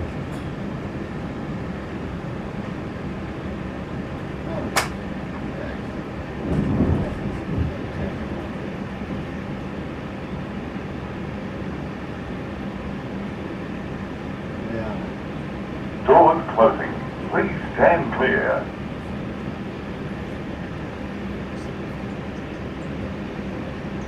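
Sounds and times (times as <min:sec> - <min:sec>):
train interior rumble: 0:00.0 - 0:24.0
sharp click: 0:04.7 - 0:05.0.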